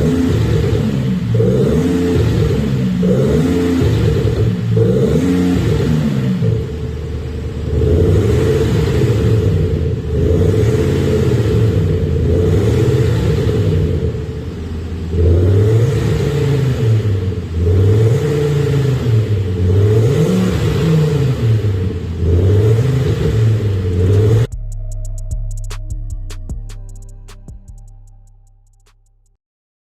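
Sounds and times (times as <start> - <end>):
car engine revving: 0.0 - 28.8
music with ticking beat: 24.0 - 29.4.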